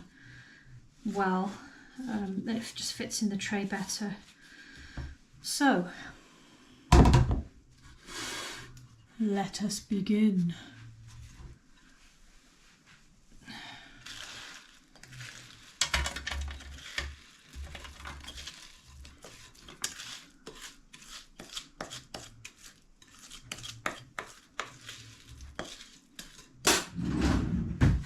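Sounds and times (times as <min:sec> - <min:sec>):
spoon scraping a bowl: 0:14.0 - 0:27.0.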